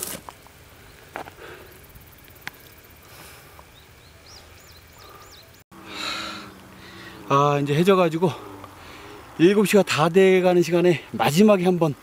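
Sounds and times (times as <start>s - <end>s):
bird chirping: 3.6s - 9.4s.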